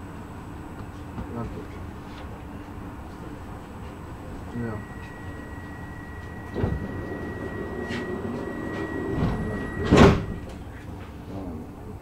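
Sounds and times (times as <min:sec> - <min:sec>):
train carriage rumble: 0:00.0 - 0:12.0
thin high tone: 0:04.5 - 0:10.5.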